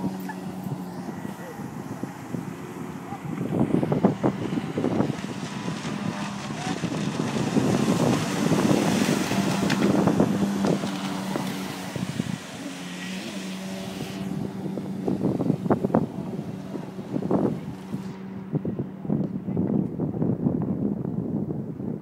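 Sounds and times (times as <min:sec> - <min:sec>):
jet ski engine running: 0:00.0 - 0:22.0
wind buffeting microphone: 0:00.0 - 0:22.0.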